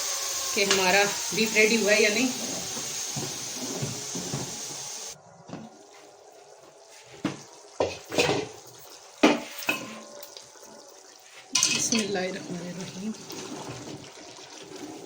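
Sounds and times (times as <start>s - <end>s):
pressure cooker hissing steam: 0.0s - 5.2s
metal pot and lid clanking: 7.8s - 8.6s, 9.2s - 10.3s, 11.6s - 12.2s.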